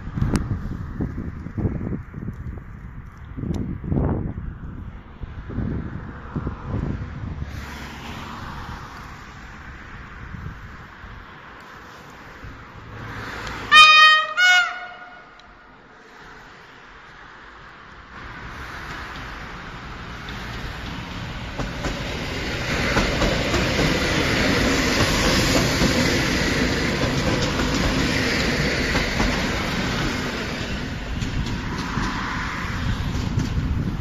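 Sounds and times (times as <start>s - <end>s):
train wheels clattering over rail joints: 18.7s - 34.0s.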